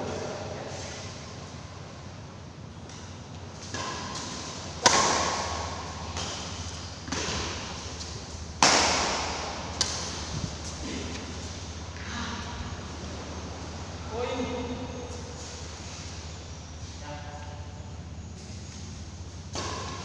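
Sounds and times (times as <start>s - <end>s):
rackets striking shuttlecock: 2.8s - 11.7s, 18.3s - 20.0s.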